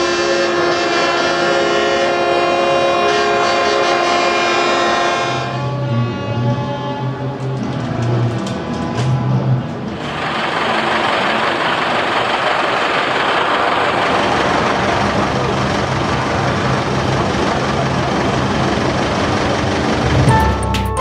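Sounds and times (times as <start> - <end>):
tractor engines droning: 4.9 - 20.9
music: 20.1 - 21.0.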